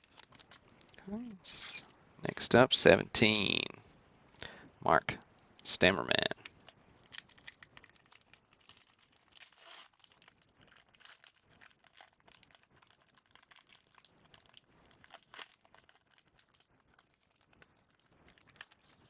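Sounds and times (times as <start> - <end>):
foil wrapper crinkling and tearing: 0.0 - 0.9, 7.0 - 19.0.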